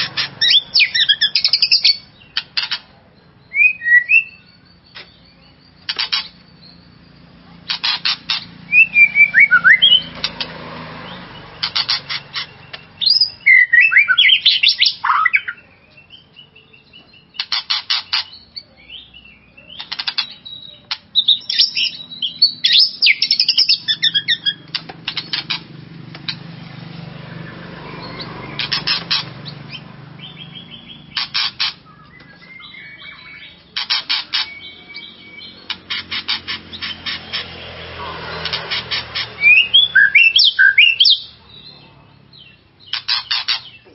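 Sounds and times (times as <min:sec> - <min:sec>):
bird rapid ticking: 0:00.0 - 0:16.2, 0:16.8 - 0:41.7, 0:42.3 - 0:43.9
bird singing whistled phrases: 0:03.2 - 0:07.4, 0:08.7 - 0:10.1, 0:12.6 - 0:17.4, 0:18.4 - 0:24.6, 0:31.8 - 0:33.6, 0:39.4 - 0:41.4.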